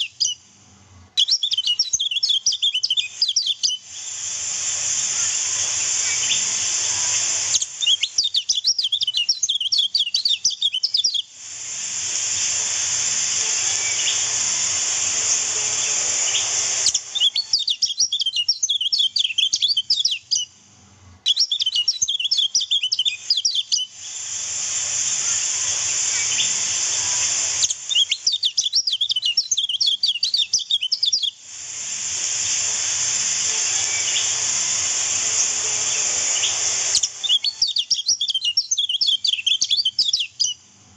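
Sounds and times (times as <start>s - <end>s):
bird twittering: 0.0s - 0.4s, 1.2s - 3.8s, 5.2s - 11.3s, 13.4s - 14.4s, 15.2s - 20.5s, 21.3s - 23.9s, 25.7s - 31.4s, 33.6s - 40.6s.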